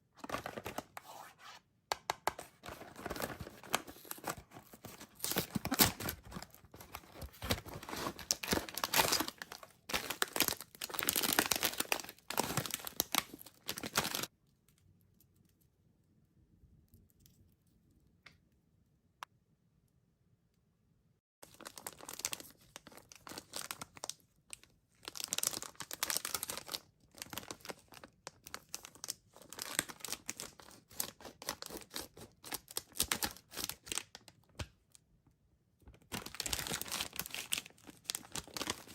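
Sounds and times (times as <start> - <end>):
candy wrappers crinkling: 2.6 - 14.3, 21.4 - 34.4, 35.9 - 38.9.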